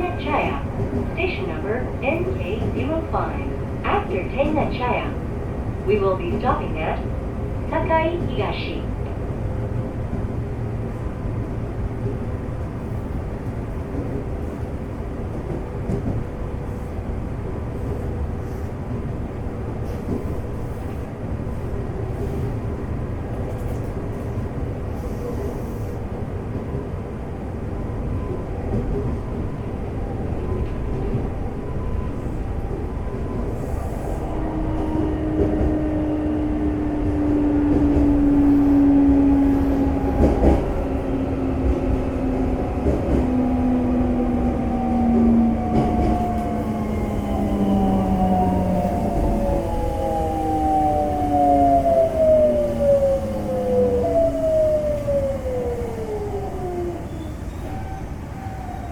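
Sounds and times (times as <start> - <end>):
train wheels rumbling on rail: 0.0 - 58.9.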